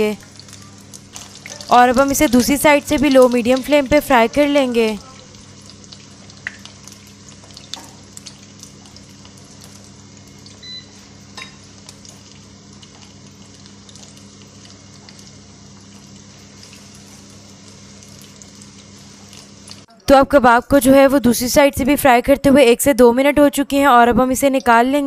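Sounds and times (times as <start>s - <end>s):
meat sizzling in hot oil: 0.0s - 19.9s.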